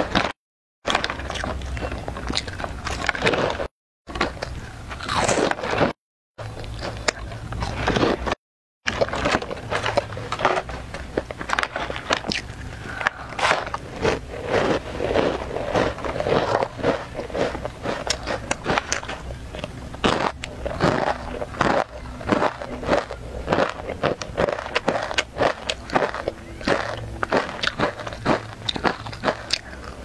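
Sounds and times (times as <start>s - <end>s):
crunching crisp snacks: 0.0s - 30.0s.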